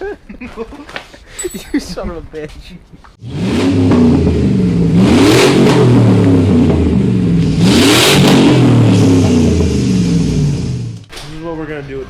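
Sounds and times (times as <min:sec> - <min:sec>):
car engine revving: 0:03.2 - 0:11.1.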